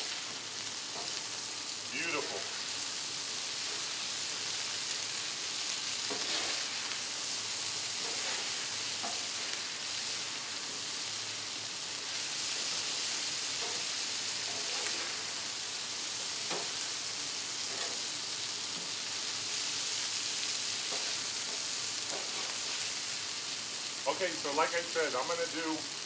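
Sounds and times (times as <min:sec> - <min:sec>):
chicken wings sizzling on griddle: 0:00.0 - 0:26.0
spatula scraping griddle: 0:06.0 - 0:07.0, 0:07.9 - 0:09.6, 0:13.5 - 0:15.3, 0:17.6 - 0:18.0, 0:20.9 - 0:22.8.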